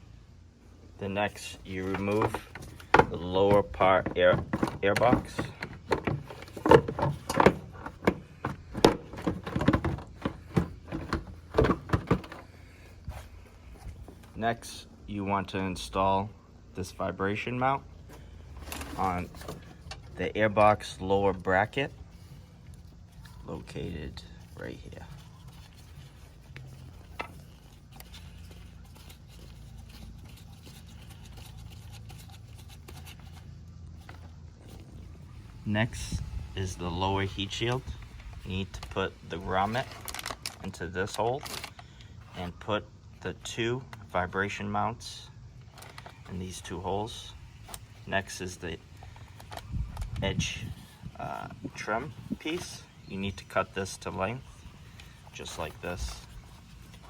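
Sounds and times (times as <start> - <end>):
steady low hum: 0.0 - 57.0
plastic parts clicking and tapping: 1.8 - 12.4
hard plastic knocks and clunks: 1.8 - 12.5.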